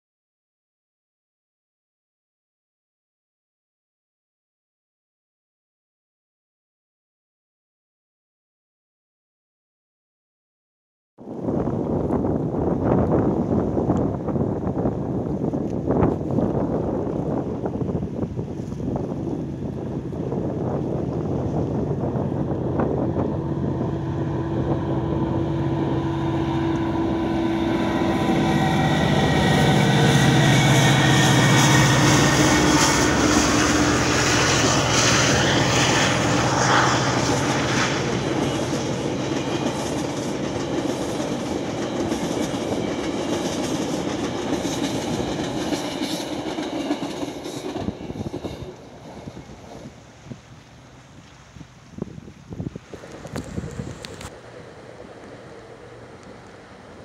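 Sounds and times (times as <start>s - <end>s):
train wheels on rails: 19.5s - 50.5s, 52.8s - 57.0s
low drone: 21.9s - 41.1s, 53.0s - 57.0s.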